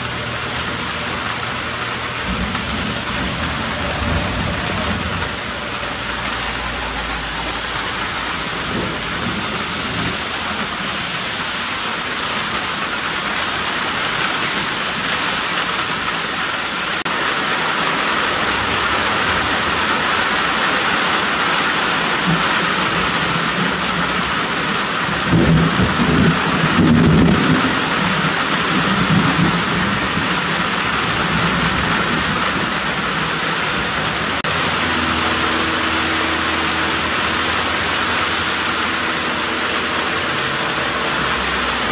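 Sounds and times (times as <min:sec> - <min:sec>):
low rumble of thunder: 0:00.0 - 0:11.7, 0:22.2 - 0:41.9
steady rain falling: 0:00.0 - 0:41.9.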